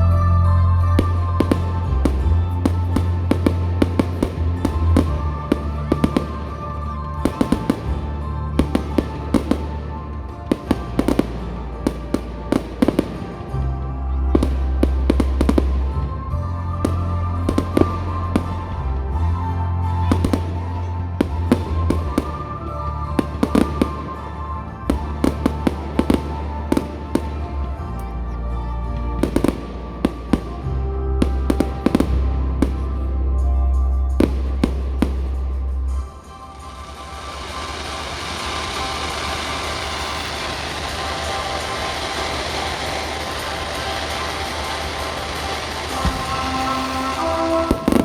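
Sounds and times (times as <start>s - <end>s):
fireworks bangs and crackles: 0.0s - 48.0s
music with heavy bass: 0.0s - 48.0s.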